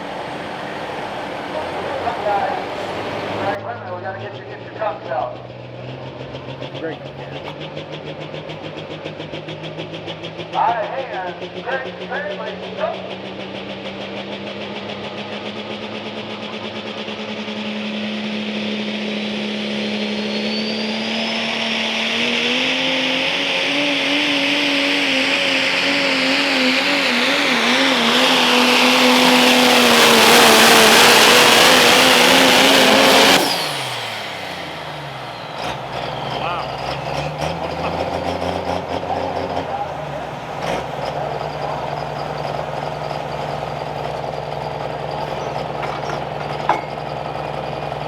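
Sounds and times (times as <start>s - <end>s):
truck engine at full throttle: 0.0s - 48.0s
rushing noise: 17.2s - 44.8s
turbo whistle: 18.8s - 38.0s.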